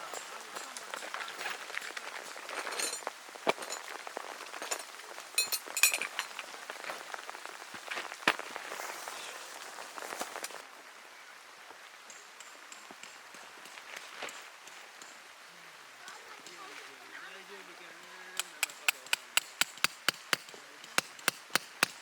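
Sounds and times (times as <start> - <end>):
rain pattering: 0.0 - 22.0
metallic clinks: 4.6 - 6.4.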